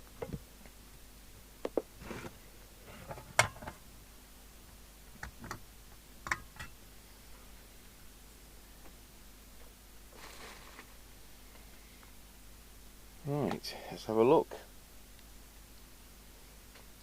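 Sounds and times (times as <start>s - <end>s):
faint room noise: 0.0s - 17.0s.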